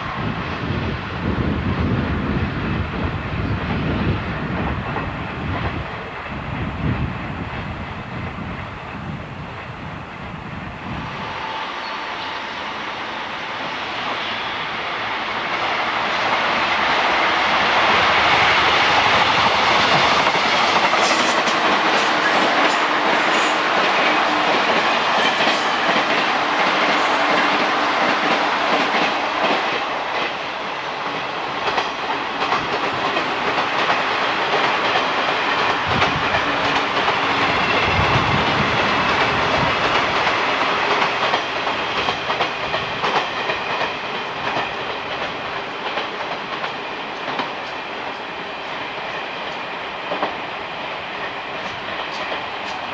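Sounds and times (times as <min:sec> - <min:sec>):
train wheels clacking over rail joints: 0:12.7 - 0:52.9.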